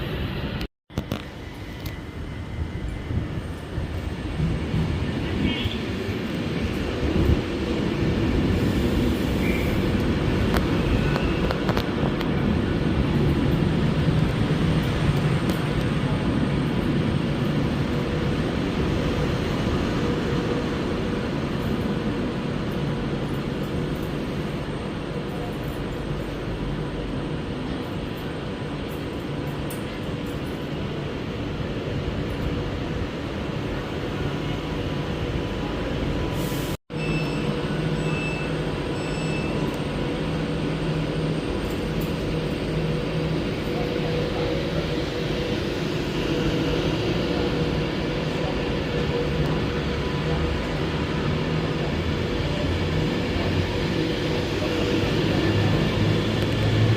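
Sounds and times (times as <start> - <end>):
train running noise and hum: 0.0 - 56.9
faint short beeps: 37.0 - 39.8.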